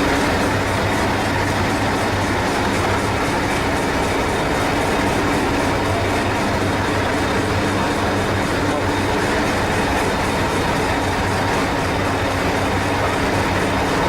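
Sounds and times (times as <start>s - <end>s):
miniature train engine hum: 0.0s - 14.0s
rail noise: 0.0s - 14.0s.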